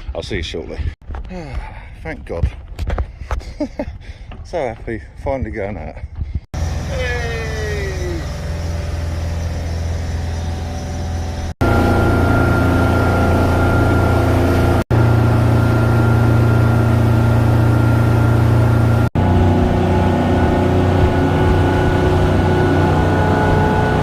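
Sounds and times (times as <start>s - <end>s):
motorboat engine humming: 6.6s - 24.0s.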